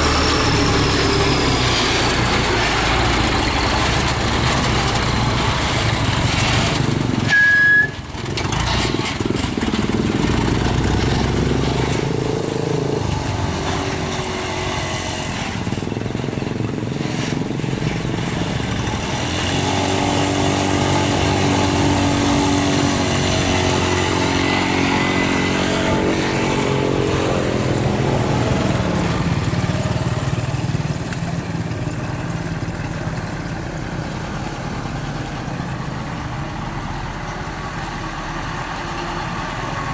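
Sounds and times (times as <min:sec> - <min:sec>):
vehicle passing by: 0:00.0 - 0:07.2, 0:09.8 - 0:31.5
road traffic engines: 0:00.0 - 0:39.9
trucks and motorcycles passing: 0:00.0 - 0:39.9
short high beep: 0:07.3 - 0:08.0.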